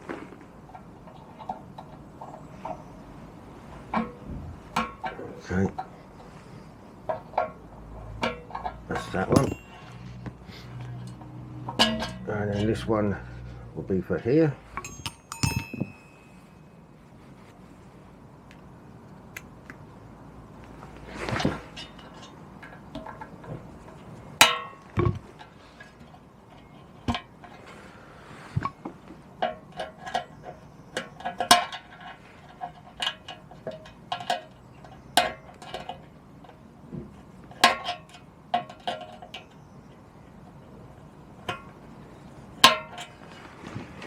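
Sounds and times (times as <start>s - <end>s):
metal tools clinking: 7.1s - 12.9s, 14.2s - 16.9s.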